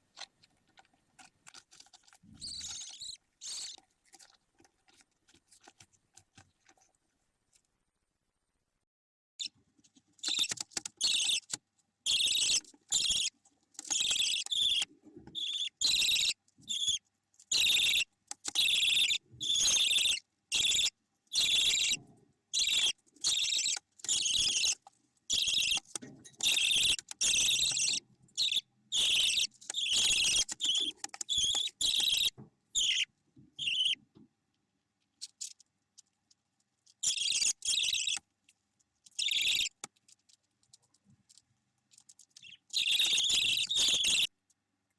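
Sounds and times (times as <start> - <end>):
budgerigar chicks calling harshly: 10.3 - 11.5, 12.1 - 13.3, 13.9 - 22.0, 22.6 - 34.0, 37.0 - 38.2, 39.2 - 39.8, 42.8 - 44.3.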